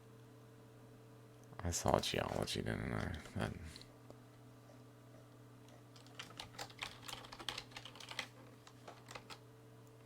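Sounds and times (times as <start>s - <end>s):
faint low hum: 0.0s - 10.0s
keyboard typing: 5.9s - 9.4s.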